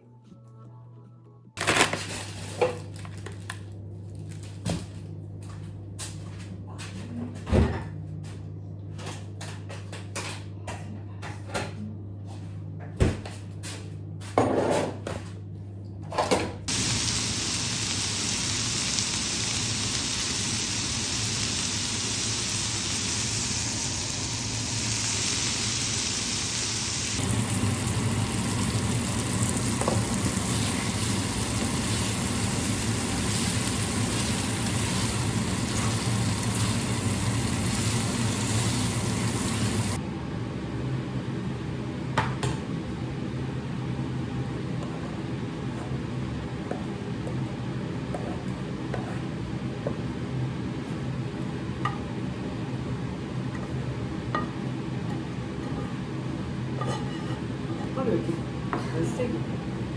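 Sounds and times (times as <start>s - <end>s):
continuous hiss: 16.7s - 40.0s
steady low hum: 16.7s - 40.0s.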